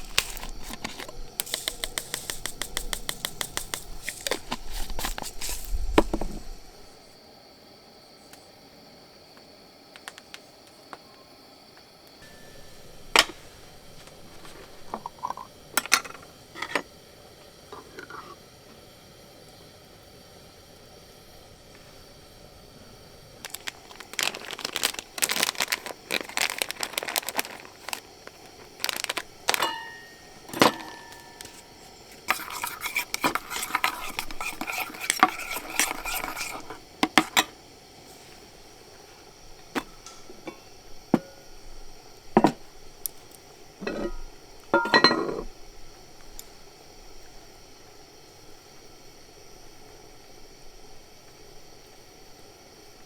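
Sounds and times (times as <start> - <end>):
utensils tapping and clattering: 0.0 - 6.4, 12.2 - 16.8, 28.6 - 37.5, 43.8 - 45.5
dishes clinking: 12.2 - 16.8, 29.5 - 31.7, 39.8 - 41.4, 42.4 - 42.6, 43.8 - 45.5
scraping of dishes: 29.5 - 37.6, 43.8 - 45.5.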